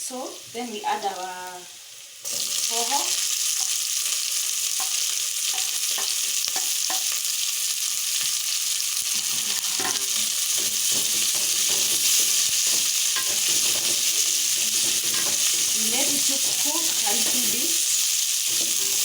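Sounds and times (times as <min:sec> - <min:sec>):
vegetables sizzling in oil: 0:00.0 - 0:19.0
spoon scraping a pot: 0:09.1 - 0:17.5, 0:18.4 - 0:19.0.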